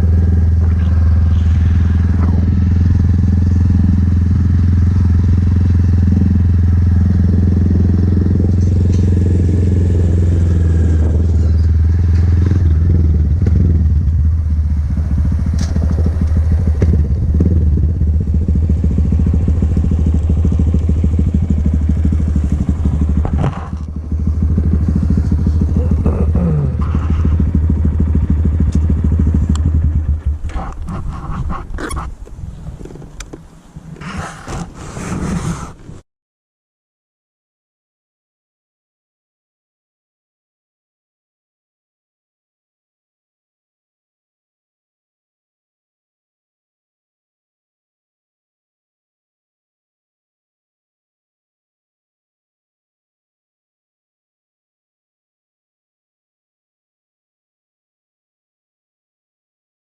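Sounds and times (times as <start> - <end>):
vehicle engine droning: 0.0 - 36.0.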